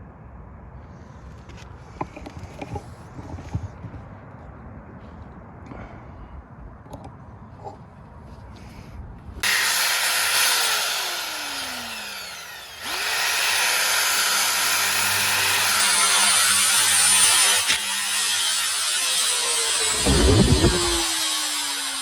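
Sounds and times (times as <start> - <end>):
electric drill boring into metal: 9.4 - 22.0.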